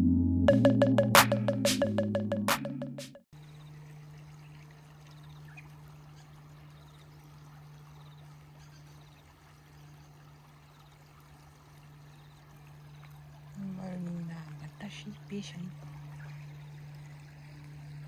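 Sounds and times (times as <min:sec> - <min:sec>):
river water trickling: 0:03.4 - 0:18.0.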